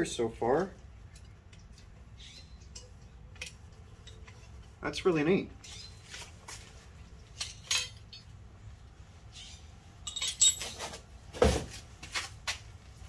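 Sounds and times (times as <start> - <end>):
clinks: 1.1 - 4.7, 7.2 - 8.4, 10.0 - 10.8.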